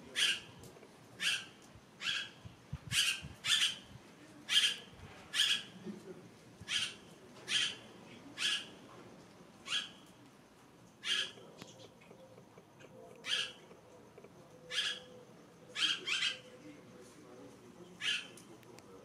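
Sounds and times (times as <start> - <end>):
bird harsh calls: 0.1 - 0.5, 1.2 - 3.9, 4.5 - 5.8, 6.7 - 8.8, 9.6 - 10.0, 11.0 - 13.8, 14.6 - 16.6, 18.0 - 18.4.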